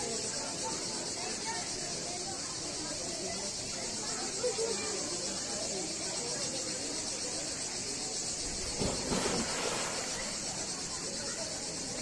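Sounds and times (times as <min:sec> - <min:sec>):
insects buzzing: 0:05.2 - 0:12.0.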